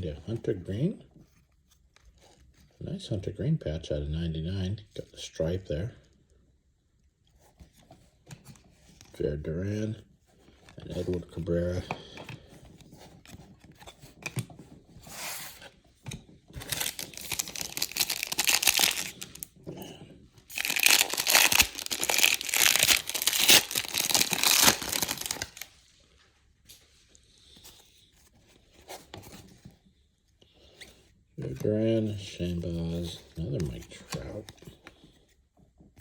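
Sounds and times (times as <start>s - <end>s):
card wrapper tearing and crinkling: 16.6s - 19.5s, 20.4s - 25.8s.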